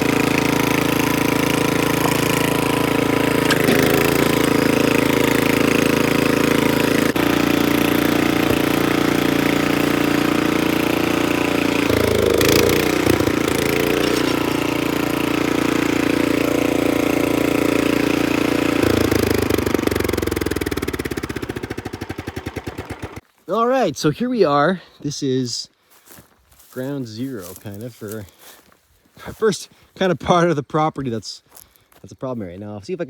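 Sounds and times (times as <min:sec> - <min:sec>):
rototiller engine running: 0:00.0 - 0:23.2.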